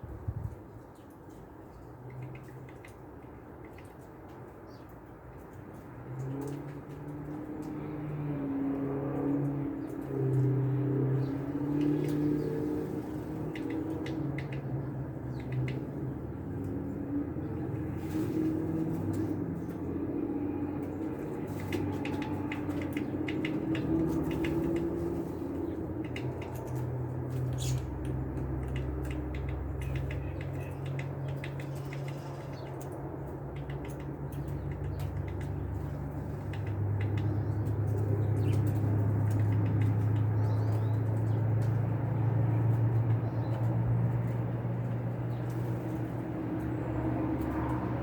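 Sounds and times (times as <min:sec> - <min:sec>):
birds tapping at feeder: 0:09.1 - 0:17.9, 0:20.8 - 0:48.0.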